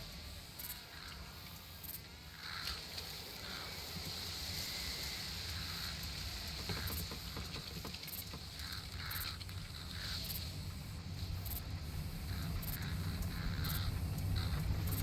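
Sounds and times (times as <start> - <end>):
high-pitched insect drone: 11.4 - 15.0.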